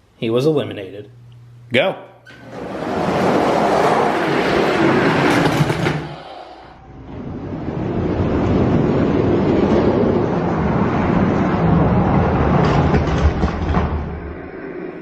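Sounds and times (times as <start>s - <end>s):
toy wheels rumbling on plastic track: 2.5s - 6.3s.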